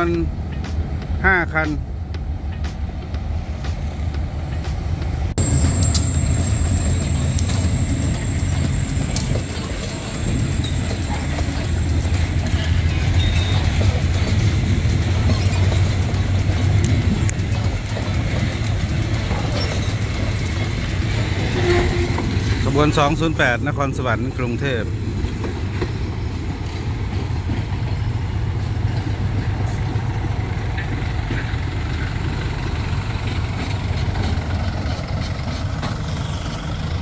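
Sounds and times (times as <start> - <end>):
locomotive engine rumble: 0.0 - 37.0
thin high tone: 5.4 - 11.2.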